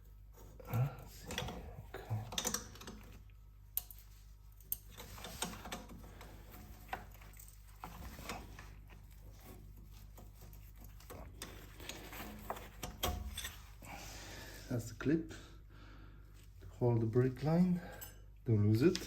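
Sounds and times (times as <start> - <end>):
steady low hum: 0.0 - 19.0
light clicks and scrapes: 0.3 - 13.9.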